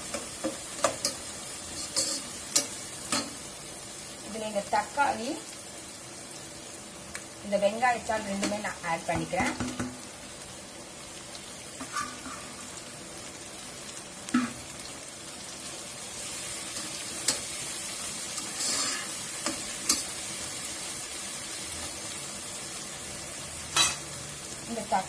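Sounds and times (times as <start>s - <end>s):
vegetables sizzling in oil: 0.0s - 25.0s
utensils clinking against pot: 1.8s - 3.3s.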